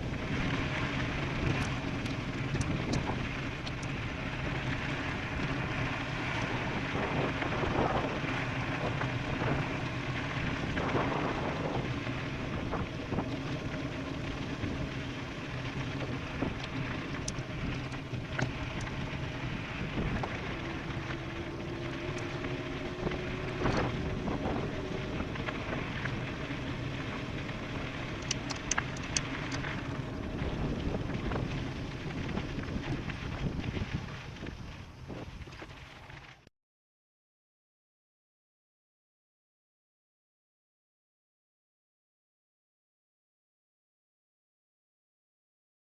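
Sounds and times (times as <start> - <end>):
wind rushing over microphone: 0.0 - 36.2
sharp clicks: 28.2 - 29.7.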